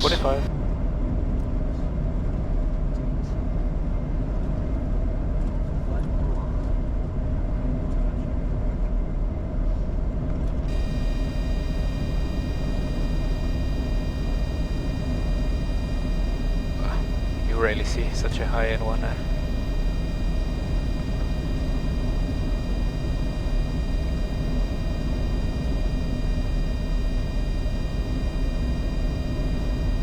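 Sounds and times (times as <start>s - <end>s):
thin high-pitched whine: 0.0s - 0.5s, 10.7s - 30.0s
cockpit airflow and engine hum: 10.7s - 30.0s.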